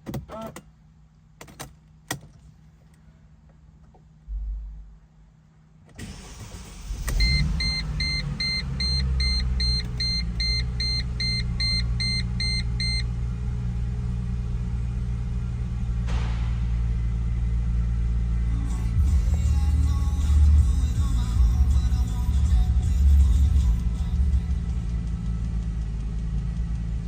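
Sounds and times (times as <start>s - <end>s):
car engine starting and idling: 0.0s - 27.0s
dashboard warning chime beeping: 7.0s - 13.2s.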